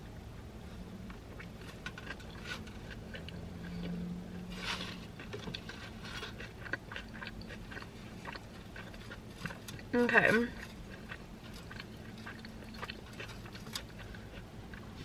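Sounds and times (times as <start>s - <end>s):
low steady hum: 0.0s - 15.0s
close-up chewing: 1.0s - 15.0s.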